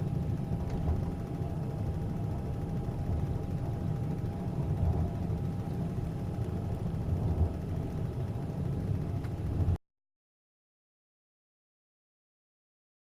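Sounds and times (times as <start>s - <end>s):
faint steady whine: 0.0s - 9.8s
train rumbling: 0.0s - 9.8s.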